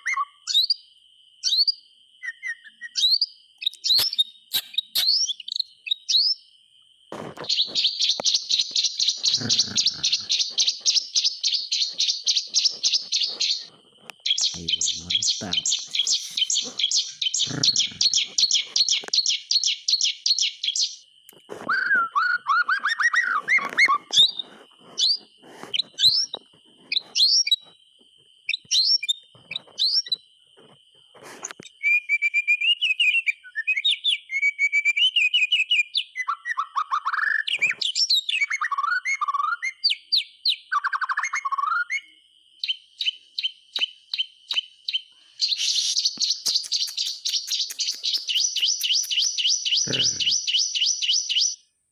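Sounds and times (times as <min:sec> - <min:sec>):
bird singing whistled phrases: 0:00.0 - 0:00.8, 0:01.4 - 0:06.4, 0:21.7 - 0:24.0, 0:31.8 - 0:37.4, 0:45.4 - 0:51.6
bird chattering high notes: 0:03.7 - 0:05.2, 0:09.0 - 0:10.8, 0:14.4 - 0:18.3, 0:45.5 - 0:50.6.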